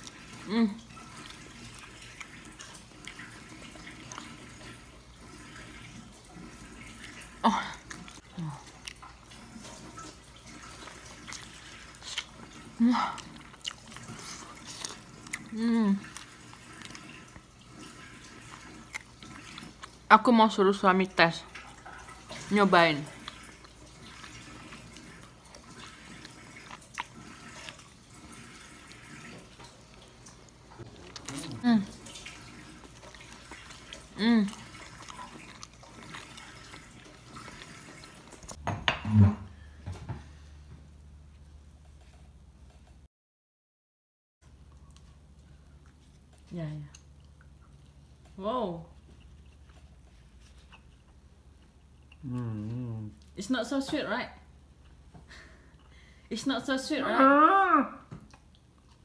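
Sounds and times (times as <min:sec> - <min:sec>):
wet chewing and lip-smacking: 0:00.0 - 0:05.9, 0:06.8 - 0:20.2, 0:21.5 - 0:38.6, 0:44.5 - 0:53.4, 0:58.1 - 0:59.0
short vocal sound: 0:52.2 - 0:53.2.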